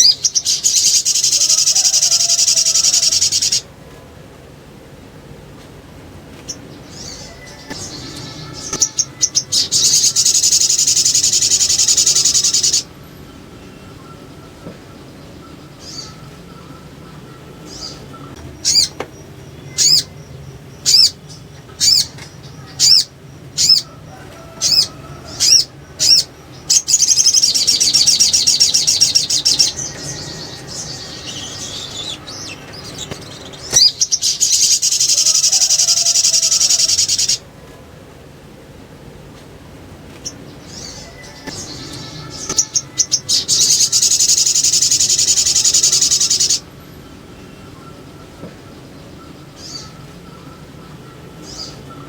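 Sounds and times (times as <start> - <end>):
bird chattering trills: 0.0 - 3.7, 6.5 - 37.5, 40.2 - 52.0
bird calling sharp high notes: 6.9 - 12.9, 40.7 - 46.7.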